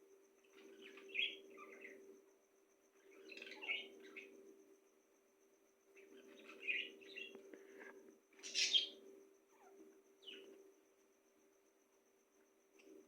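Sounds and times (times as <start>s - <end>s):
steady low hum: 0.0s - 13.0s
birds chirping: 0.5s - 2.0s, 3.0s - 4.3s, 6.0s - 7.4s, 8.4s - 9.0s.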